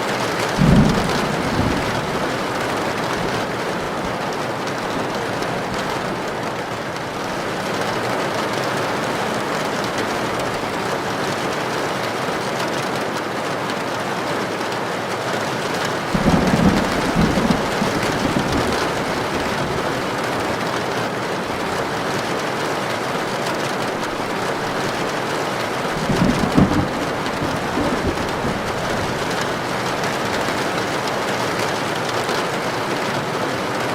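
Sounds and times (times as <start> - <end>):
heavy rain on a tin roof: 0.0 - 33.9
thunder rumbling: 0.5 - 6.5, 16.0 - 20.7, 23.8 - 31.7.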